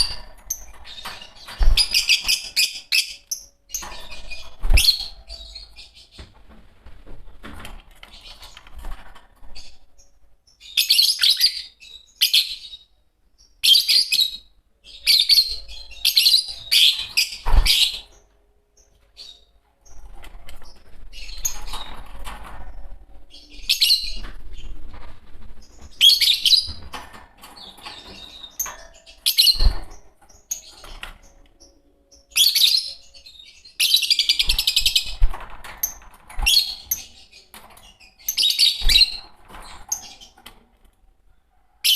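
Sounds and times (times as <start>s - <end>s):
lovebirds chirping shrilly: 0.0s - 6.2s, 35.8s - 40.4s.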